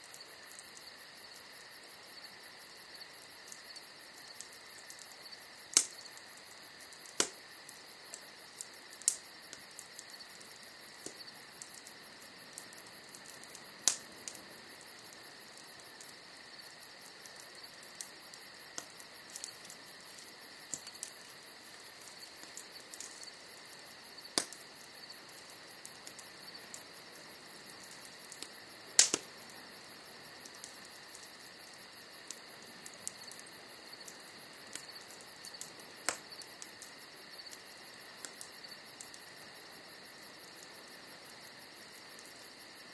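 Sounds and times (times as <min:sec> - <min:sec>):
bonfire crackling and popping: 0:00.0 - 0:42.9.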